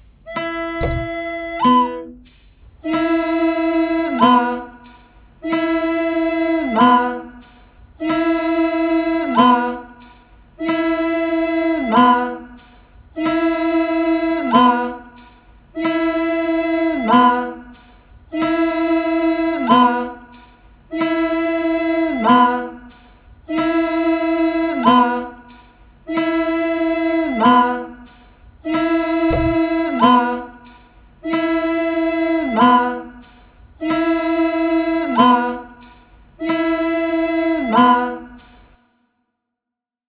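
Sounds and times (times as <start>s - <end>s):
wind instrument note sliding down: 0.6s - 2.0s.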